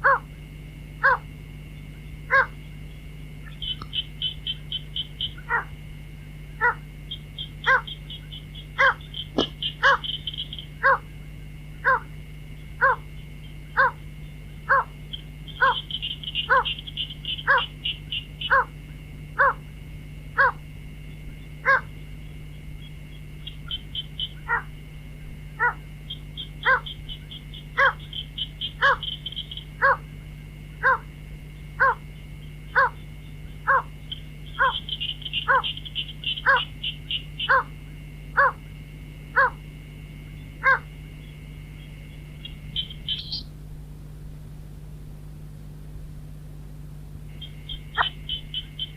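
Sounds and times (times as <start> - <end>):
fast high bird chattering: 3.5 - 5.7, 6.6 - 11.0, 14.7 - 18.7, 25.6 - 30.0, 33.7 - 37.7, 42.4 - 43.5, 47.4 - 48.9.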